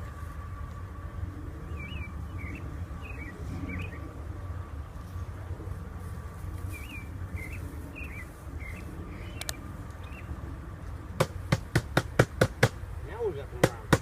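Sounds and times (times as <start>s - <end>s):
low outdoor rumble: 0.0s - 14.0s
small birds chirping: 1.6s - 4.1s, 6.6s - 10.4s
sharp knocks: 11.2s - 12.8s, 13.6s - 14.0s.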